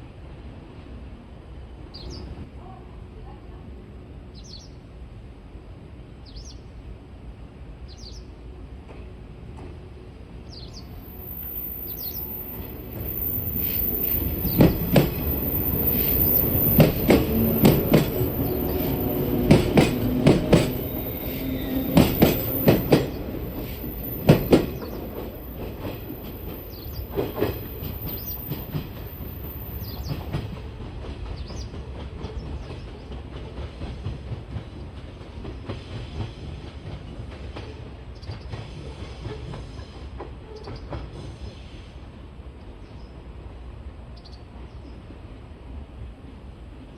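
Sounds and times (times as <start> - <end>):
train wheels clattering on rails: 11.1 - 41.9.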